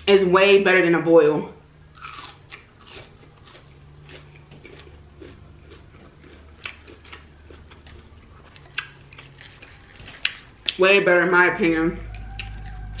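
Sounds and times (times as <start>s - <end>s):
crunchy chewing: 1.9s - 10.8s, 12.1s - 13.0s.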